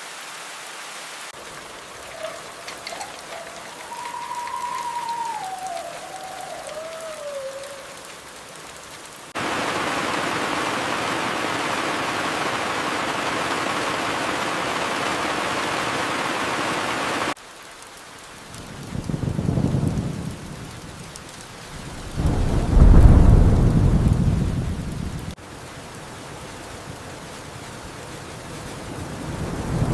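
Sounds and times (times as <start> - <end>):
heavy downpour: 0.0 - 29.9
rain falling: 0.0 - 29.9
thunder rumbling: 18.6 - 25.4.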